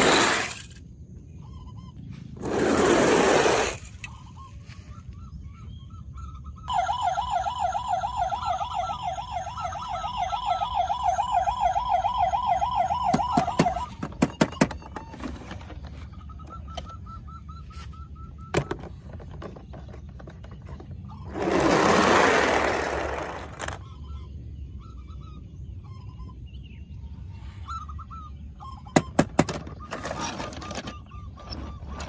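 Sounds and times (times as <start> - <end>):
toy siren warbling wail: 6.2 - 15.6.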